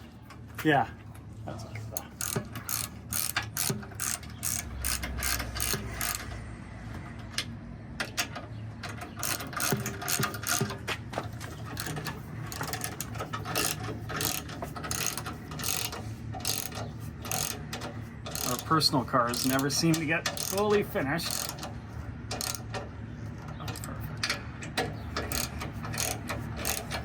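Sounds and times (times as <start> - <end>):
ratchet wrench clicking: 2.2 - 6.4, 9.2 - 10.7, 11.7 - 22.9, 23.7 - 27.0.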